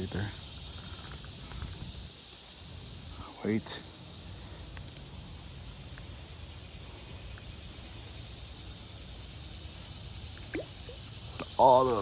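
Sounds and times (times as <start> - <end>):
creek hiss: 0.0 - 12.0
faint ticks: 4.7 - 5.1.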